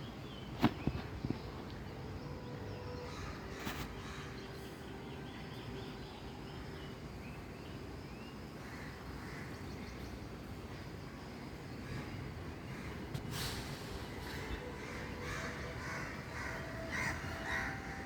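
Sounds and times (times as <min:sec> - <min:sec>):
birds calling: 0:07.3 - 0:18.0.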